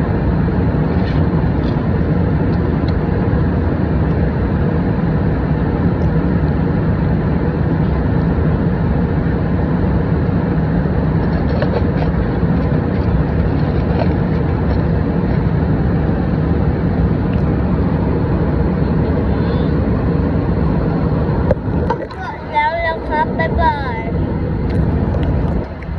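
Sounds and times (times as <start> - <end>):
airliner cabin engine and air noise: 0.0 - 25.9.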